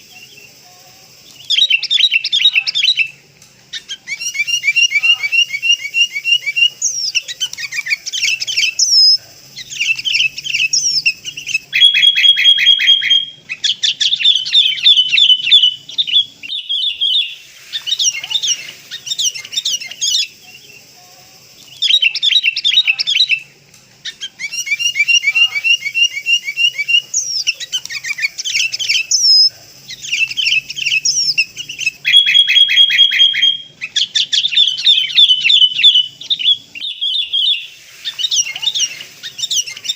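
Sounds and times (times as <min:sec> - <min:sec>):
bulbuls chattering calls: 0:00.0 - 0:39.9.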